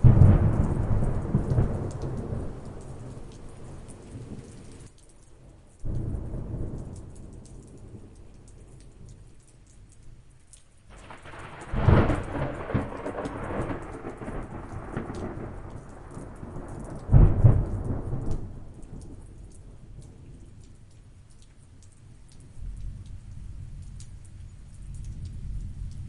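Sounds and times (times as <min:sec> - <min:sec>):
thunder rumble and cracks: 0:00.0 - 0:04.9, 0:05.8 - 0:09.2, 0:10.9 - 0:20.5
steady rain: 0:00.0 - 0:26.0.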